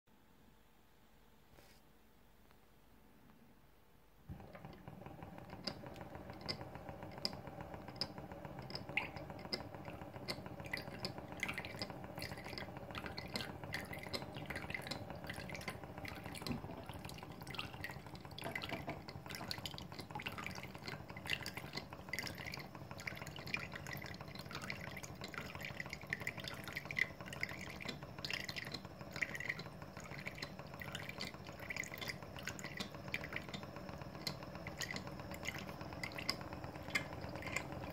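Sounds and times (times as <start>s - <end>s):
mechanical hum: 2.4s - 37.9s
water splashing and dripping: 34.2s - 37.9s.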